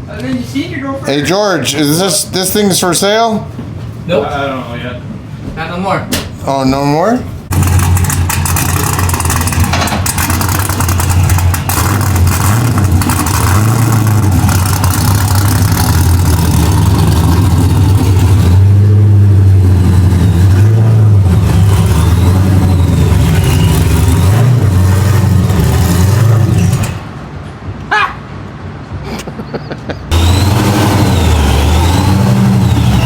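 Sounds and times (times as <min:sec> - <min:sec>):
car engine revving: 0:07.5 - 0:27.2, 0:30.1 - 0:33.0.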